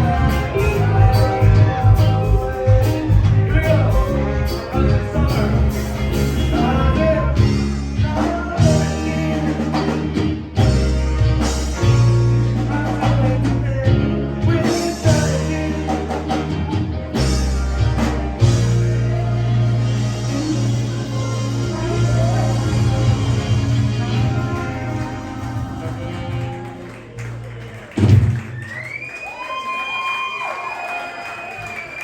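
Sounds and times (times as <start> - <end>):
live reggae band playing: 0.0 - 28.9.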